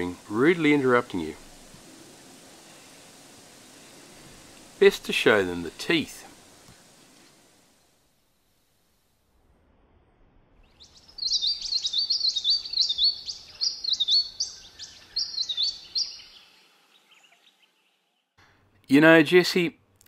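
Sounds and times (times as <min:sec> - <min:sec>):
bird giving high chirps: 0:10.8 - 0:17.6.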